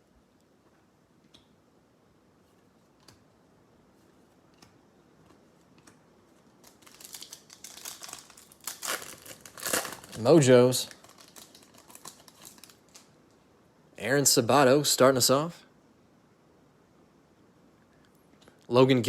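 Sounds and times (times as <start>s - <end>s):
foil wrapper crinkling: 6.4s - 13.2s.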